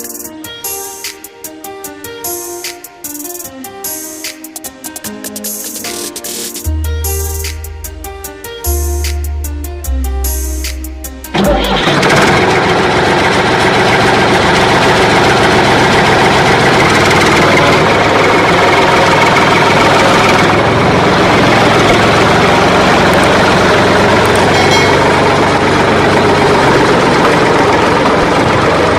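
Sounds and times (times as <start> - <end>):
music: 0.0 - 12.4, 22.4 - 28.9
vehicle engine running loudly: 11.3 - 28.9.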